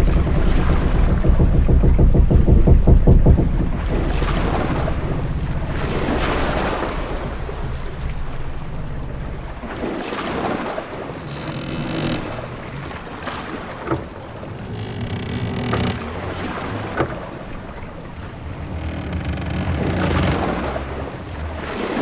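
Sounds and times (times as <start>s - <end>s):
sharp knock: 0.0s - 9.7s
ship creaking and groaning: 0.0s - 22.0s.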